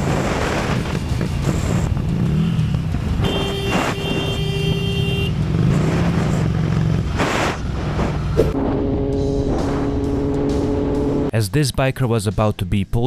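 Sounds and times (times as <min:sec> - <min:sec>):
vehicle engine running: 0:04.4 - 0:11.3.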